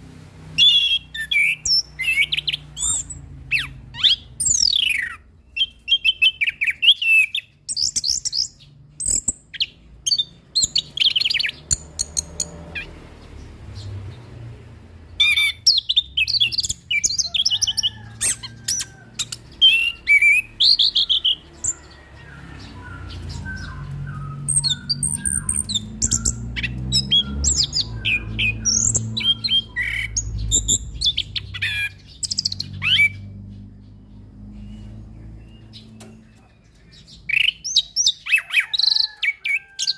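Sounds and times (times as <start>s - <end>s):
bird singing: 0.5s - 39.9s
low background rumble: 13.1s - 37.2s.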